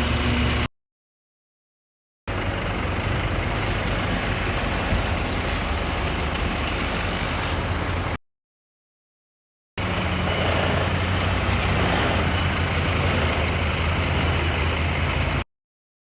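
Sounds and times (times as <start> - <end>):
truck diesel engine idling: 2.3 - 8.2, 9.8 - 15.4.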